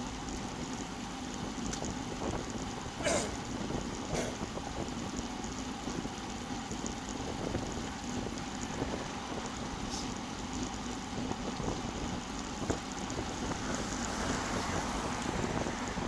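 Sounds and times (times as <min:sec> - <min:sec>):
road noise: 0:00.0 - 0:16.0
wind buffeting microphone: 0:01.4 - 0:09.8, 0:10.8 - 0:16.0.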